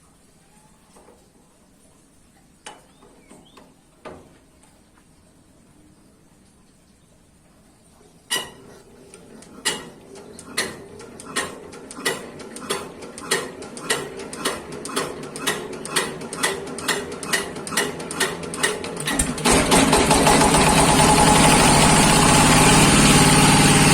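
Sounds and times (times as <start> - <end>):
hand crank clicking: 9.5 - 19.5.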